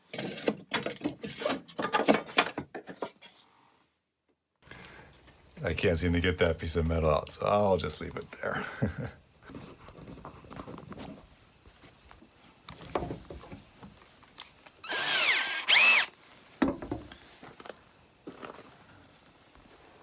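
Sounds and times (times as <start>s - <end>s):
electric drill motor whining: 14.8s - 16.1s.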